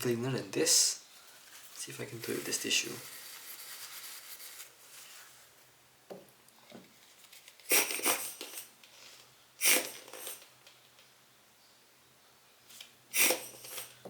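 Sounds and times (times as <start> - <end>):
tissue rubbing on glass lens: 1.1 - 5.6.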